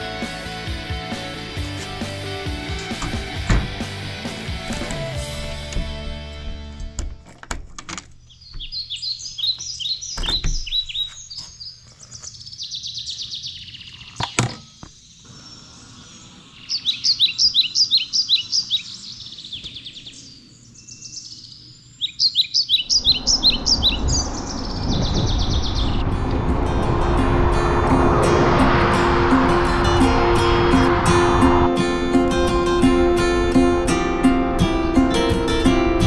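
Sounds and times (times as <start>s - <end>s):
songbird singing: 8.2s - 26.4s
steady rushing noise: 22.8s - 36.0s.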